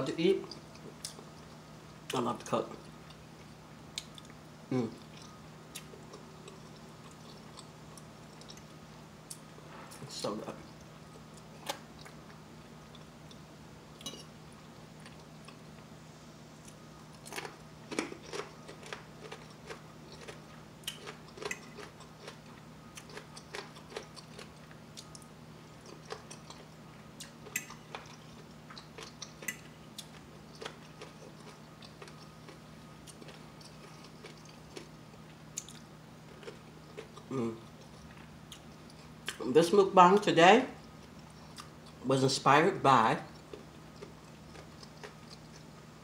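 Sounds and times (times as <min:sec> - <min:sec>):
person chewing food: 0:00.4 - 0:02.2, 0:02.8 - 0:10.0, 0:10.6 - 0:15.9, 0:16.6 - 0:39.5, 0:40.8 - 0:42.0, 0:43.3 - 0:46.0.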